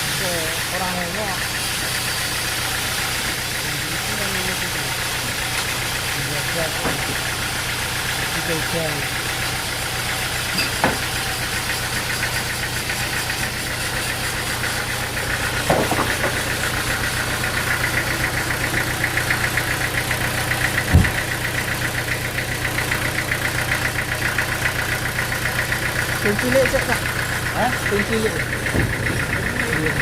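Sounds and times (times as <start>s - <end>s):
engine running with even pulse: 0.0s - 30.0s
short knocks: 20.9s - 21.3s.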